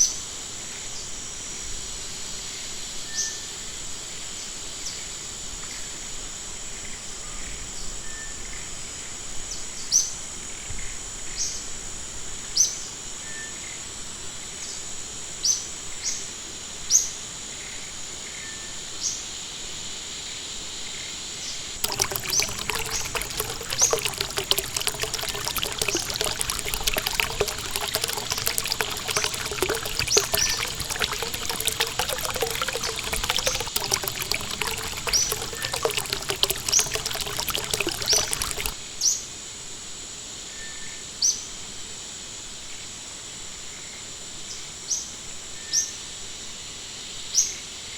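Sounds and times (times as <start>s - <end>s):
stream water trickling and splashing: 21.8s - 38.8s.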